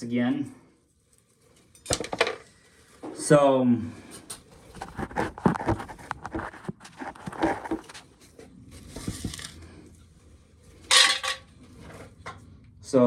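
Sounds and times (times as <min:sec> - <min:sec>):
corn kernels rattling into bucket: 0:10.9 - 0:11.4.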